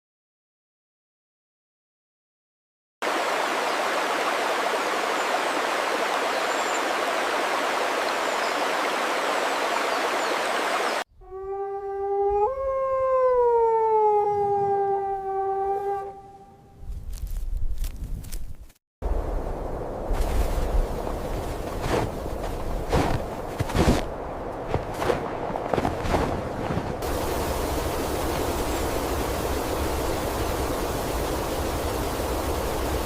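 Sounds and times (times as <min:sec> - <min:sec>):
dog howling: 0:11.2 - 0:16.6
low rumbling: 0:19.0 - 0:33.0
steady hiss: 0:27.0 - 0:33.0.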